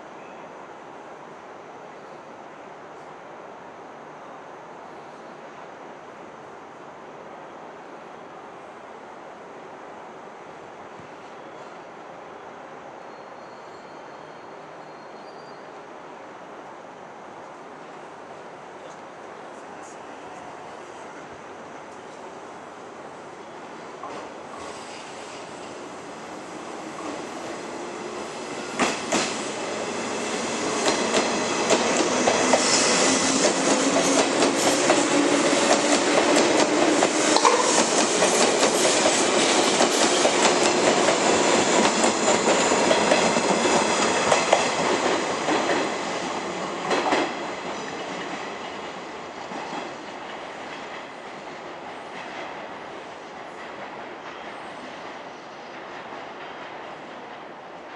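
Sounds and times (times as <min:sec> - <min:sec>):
wheels clacking over rail joints: 0:33.4 - 0:51.2.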